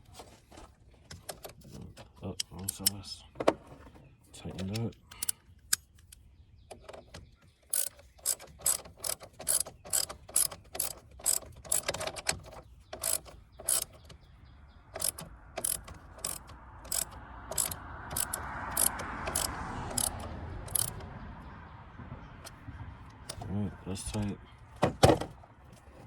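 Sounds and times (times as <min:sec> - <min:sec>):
hand ratchet clicking: 0:07.7 - 0:12.2, 0:13.0 - 0:14.0, 0:15.0 - 0:21.0.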